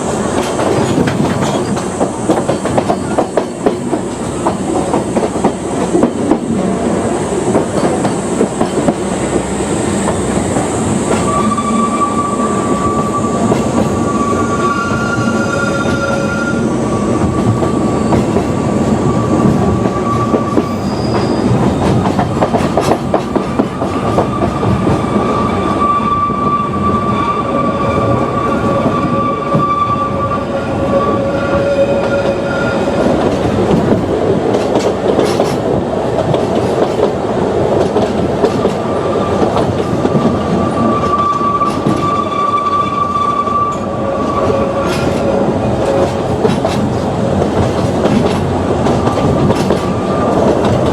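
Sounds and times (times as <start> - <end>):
train wheels clattering on track: 0.0 - 27.2, 31.6 - 50.9
high wheel squeal: 10.8 - 21.9, 23.9 - 33.2, 40.4 - 46.1.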